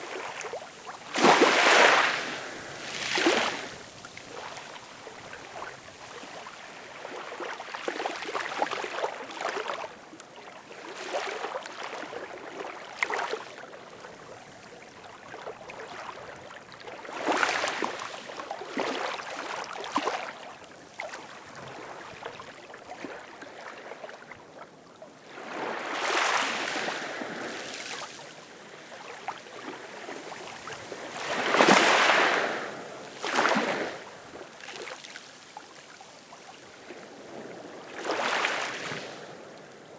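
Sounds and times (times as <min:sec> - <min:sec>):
ocean waves washing on shore: 0:00.0 - 0:09.8, 0:25.2 - 0:34.9, 0:36.2 - 0:39.9.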